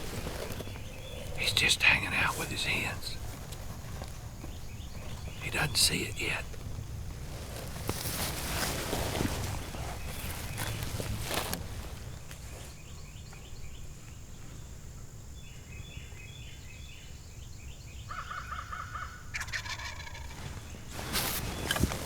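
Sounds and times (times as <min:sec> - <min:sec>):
brief rustle: 0:07.3 - 0:12.8, 0:20.3 - 0:22.0
turkey gobbling: 0:18.2 - 0:20.6.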